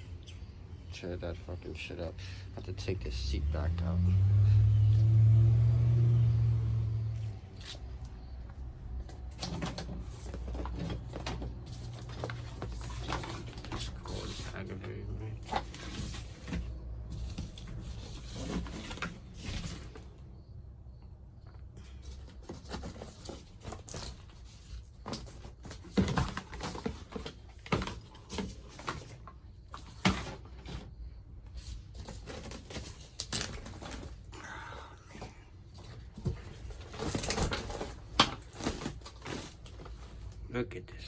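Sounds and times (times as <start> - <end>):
tearing and rustling: 9.1 - 20.1, 22.0 - 30.9, 31.5 - 34.3, 35.1 - 40.4.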